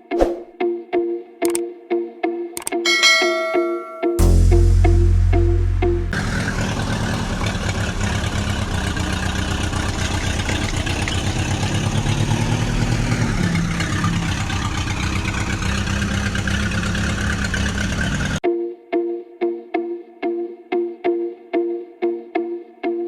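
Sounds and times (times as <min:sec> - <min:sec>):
tractor engine chugging: 0:04.2 - 0:18.4.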